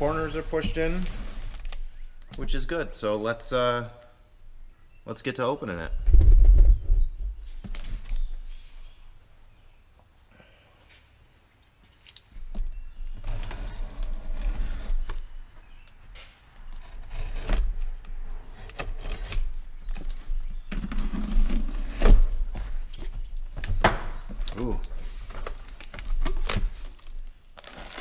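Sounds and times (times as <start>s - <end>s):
sharp knocks and low thumps: 6.0s - 7.8s.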